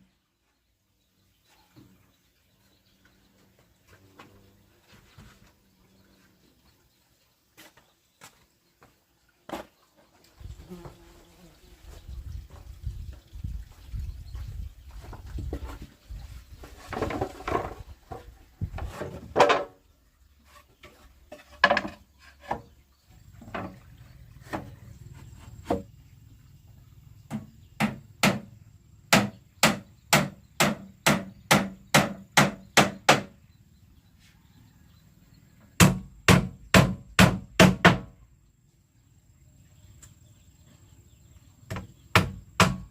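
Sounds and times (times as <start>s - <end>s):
wood knocking and scraping: 15.0s - 16.0s, 16.6s - 19.8s, 20.4s - 22.8s, 23.4s - 25.9s
hammer striking wood: 27.3s - 28.5s, 29.1s - 33.4s, 35.8s - 38.1s, 41.7s - 42.9s.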